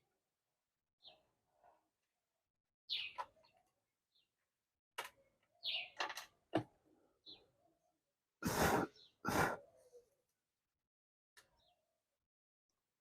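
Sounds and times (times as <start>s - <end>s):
clicks and knocks of handling: 5.0s - 5.2s.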